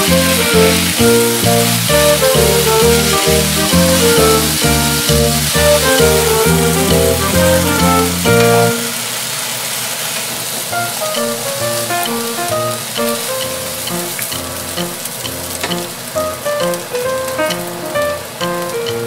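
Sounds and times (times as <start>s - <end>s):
background music: 0.0s - 9.0s, 10.8s - 19.0s
food sizzling in oil: 0.0s - 19.0s.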